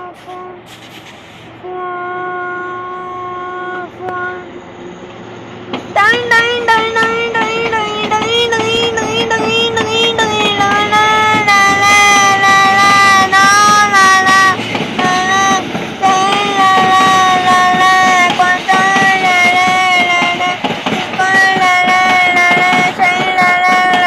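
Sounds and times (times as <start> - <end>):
locomotive horn blasts: 0.0 - 0.6.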